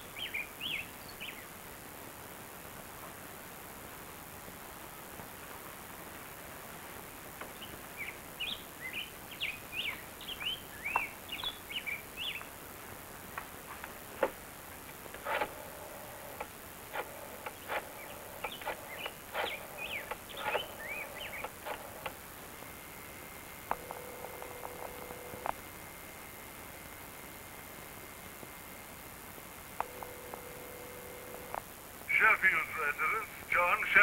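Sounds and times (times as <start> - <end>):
birds chirping: 0.0 - 1.6, 7.4 - 12.6, 15.0 - 22.2
sharp clicks: 15.1 - 22.2.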